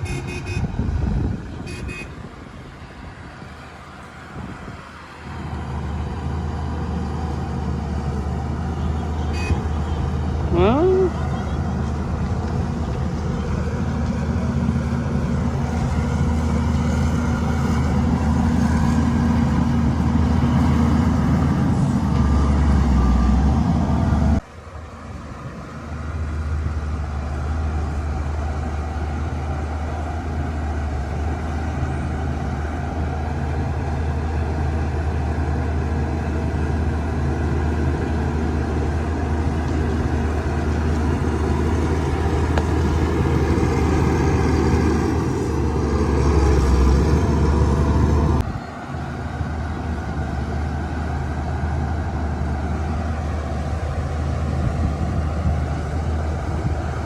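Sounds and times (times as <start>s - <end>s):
bulldozer diesel engine: 0.0s - 57.0s.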